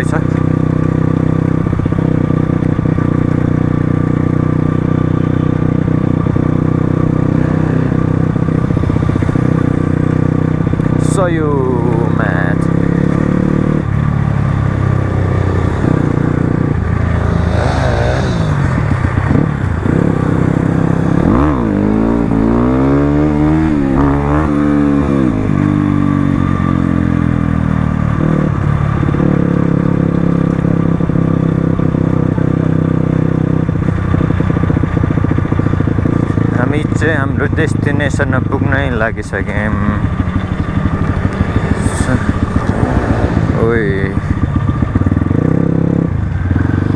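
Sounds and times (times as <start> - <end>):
dirt bike engine revving: 11.9 - 26.0, 39.4 - 44.5.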